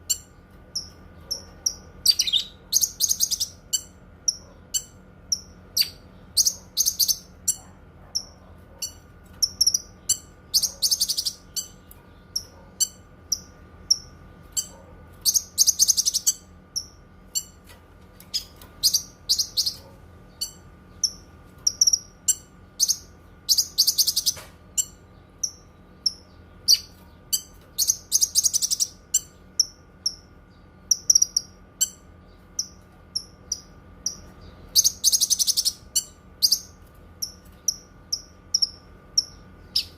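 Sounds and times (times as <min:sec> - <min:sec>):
songbird chirping: 0:00.0 - 0:07.6
faint steady hum: 0:00.0 - 0:39.9.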